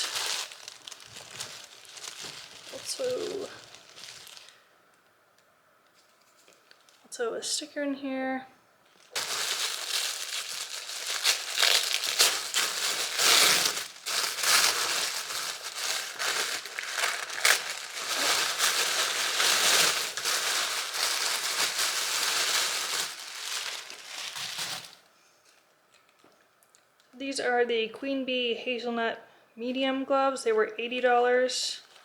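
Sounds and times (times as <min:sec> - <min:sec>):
packaging crinkling: 0:00.0 - 0:04.7, 0:08.9 - 0:25.1.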